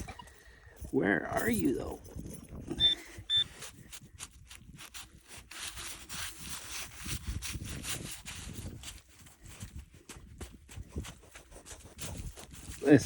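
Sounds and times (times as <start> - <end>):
short electronic beep: 2.8 - 3.5
soil being scraped: 2.9 - 13.0.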